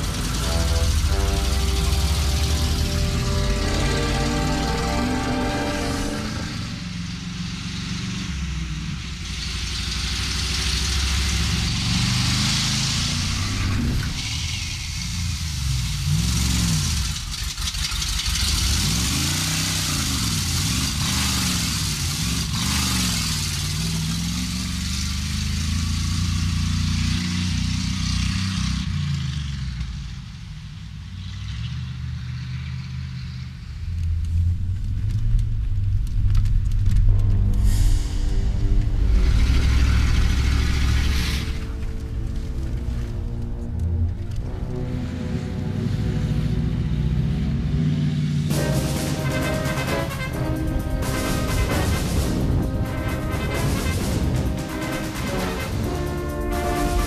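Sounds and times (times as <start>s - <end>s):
car engine revving: 0.0s - 30.2s, 31.2s - 57.0s
road and wind noise: 0.0s - 57.0s.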